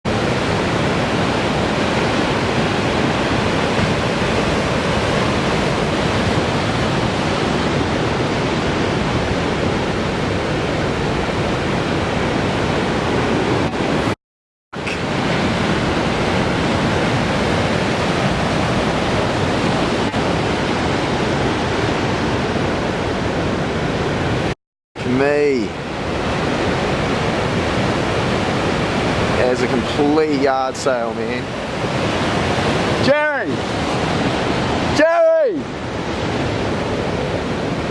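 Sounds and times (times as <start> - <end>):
heavy ocean surf roaring: 0.0 - 14.2, 14.8 - 37.9
wind buffeting microphone: 0.1 - 14.2, 14.8 - 24.5, 35.6 - 37.9.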